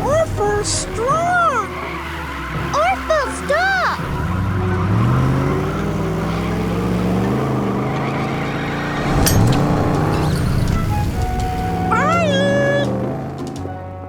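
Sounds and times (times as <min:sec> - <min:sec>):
cartoon truck engines revving: 0:00.0 - 0:14.0
sharp metallic clank: 0:09.0 - 0:10.8.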